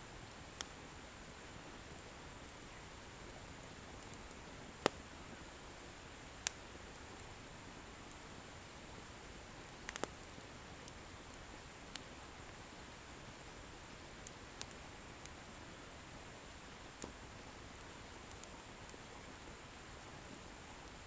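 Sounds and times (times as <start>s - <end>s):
bonfire hissing: 0.2s - 20.9s
firewood crackling: 9.2s - 13.4s, 14.1s - 15.4s, 16.4s - 19.5s.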